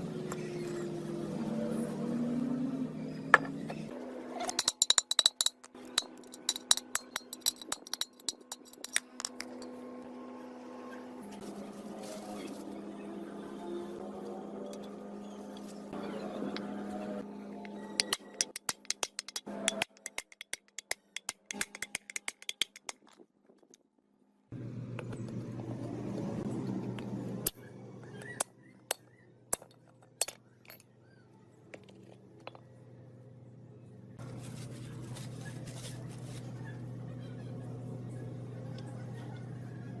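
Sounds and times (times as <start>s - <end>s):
small metal parts clinking: 4.4s - 9.7s, 18.0s - 23.8s.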